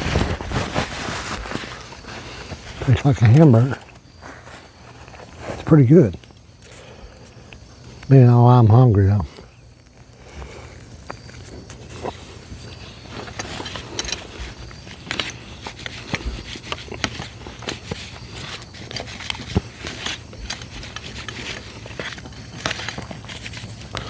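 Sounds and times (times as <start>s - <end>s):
person chewing food: 0.9s - 5.6s, 6.2s - 8.1s, 9.3s - 24.0s
utensils clicking and scraping: 9.4s - 24.0s.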